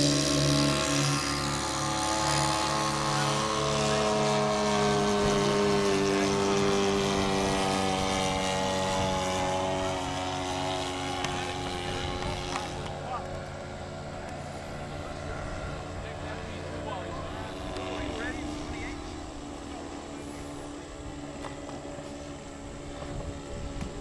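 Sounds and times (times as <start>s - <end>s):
model airplane propeller engine: 0.0s - 24.0s.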